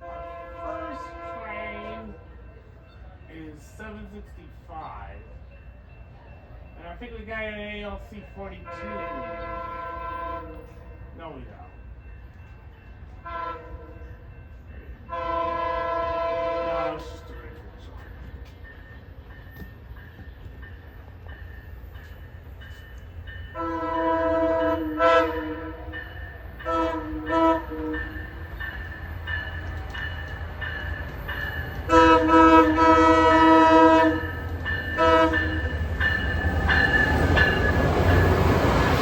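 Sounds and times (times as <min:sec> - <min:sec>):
train horn blasts: 0:00.0 - 0:02.4, 0:08.6 - 0:10.9, 0:13.2 - 0:14.2, 0:15.1 - 0:17.5, 0:23.5 - 0:28.5, 0:31.9 - 0:35.7
approaching train noise: 0:00.0 - 0:39.0.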